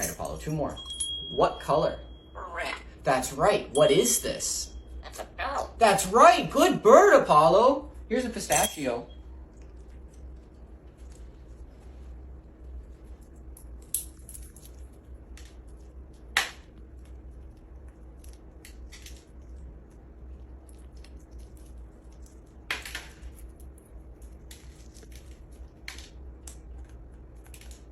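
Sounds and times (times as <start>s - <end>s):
parrot cracking a nut shell: 13.4s - 27.9s.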